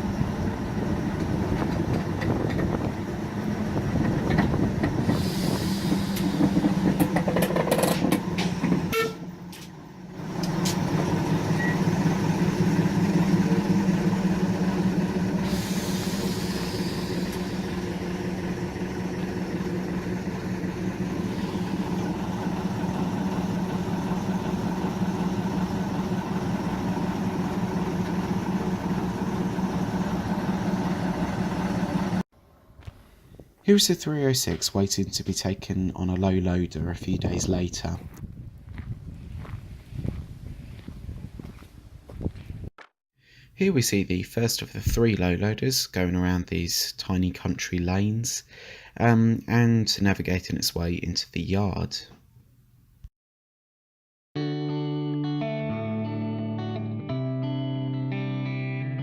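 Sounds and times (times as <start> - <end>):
diesel locomotive engine drone: 0.0 - 42.7.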